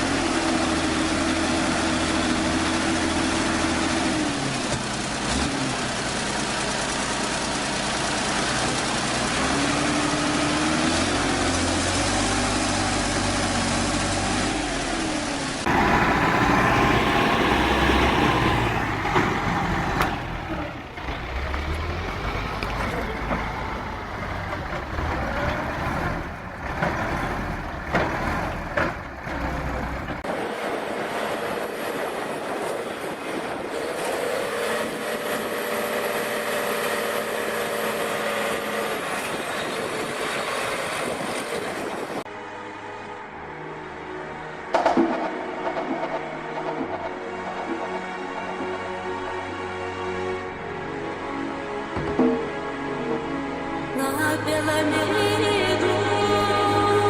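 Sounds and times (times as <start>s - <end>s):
tractor engines revving: 0.0s - 42.3s.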